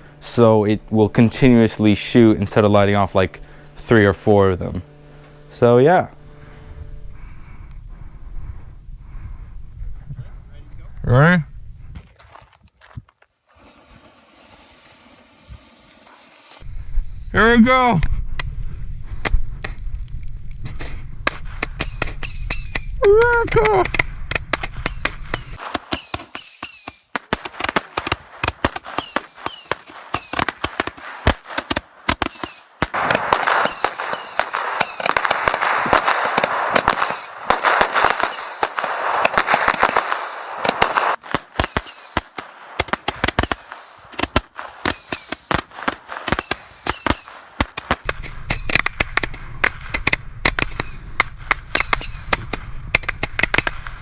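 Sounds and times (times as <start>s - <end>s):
fireworks popping: 12.0s - 16.7s, 20.7s - 54.0s
short falling whistles: 21.8s - 23.0s, 24.9s - 27.3s, 29.0s - 30.5s, 32.2s - 32.9s, 33.6s - 35.3s, 36.9s - 39.1s, 39.8s - 40.9s, 41.6s - 42.6s, 43.4s - 44.2s, 44.8s - 45.7s, 46.4s - 48.7s, 50.6s - 51.2s, 51.8s - 52.6s, 53.6s - 54.0s.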